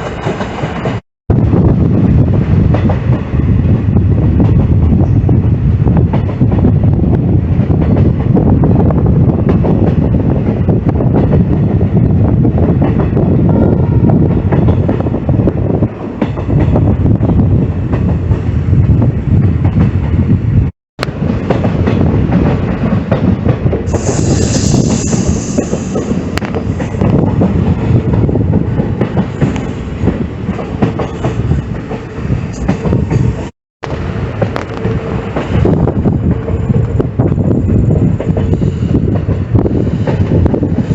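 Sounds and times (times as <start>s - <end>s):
train rumbling on rails: 0.0s - 40.9s
high hiss: 23.9s - 26.0s.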